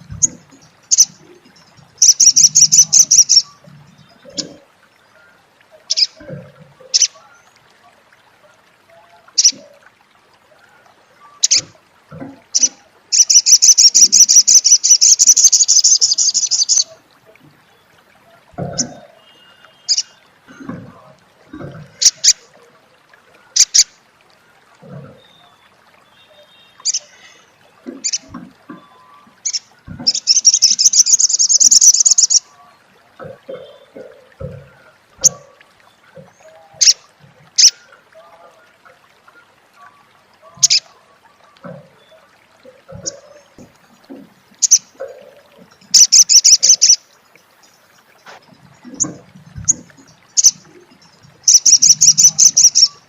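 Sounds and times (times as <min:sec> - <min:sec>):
bird chirps and chattering trill: 0:00.2 - 0:01.1, 0:02.0 - 0:03.5, 0:12.6 - 0:16.9, 0:29.4 - 0:32.4, 0:44.6 - 0:44.8, 0:46.0 - 0:47.0, 0:51.5 - 0:53.0.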